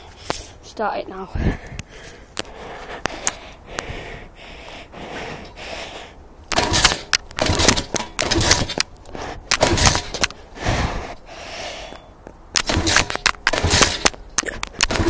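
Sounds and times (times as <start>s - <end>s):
pit bike being kick-started: 6.5s - 8.9s, 9.5s - 10.4s, 12.6s - 15.0s.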